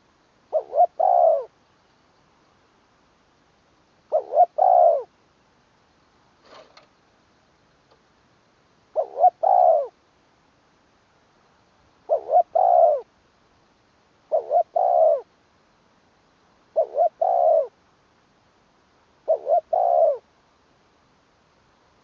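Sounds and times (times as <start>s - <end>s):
dove cooing: 0.0s - 1.5s, 4.1s - 5.1s, 8.9s - 10.0s, 12.0s - 13.1s, 14.3s - 15.3s, 16.7s - 17.8s, 19.2s - 20.3s.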